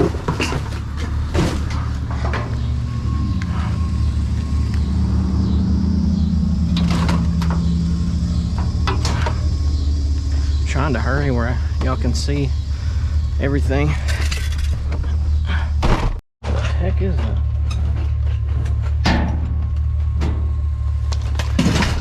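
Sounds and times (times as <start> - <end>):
knocks and clunks: 0.0 - 4.9, 6.6 - 10.3, 13.9 - 22.0
pickup truck engine drone: 0.0 - 22.0.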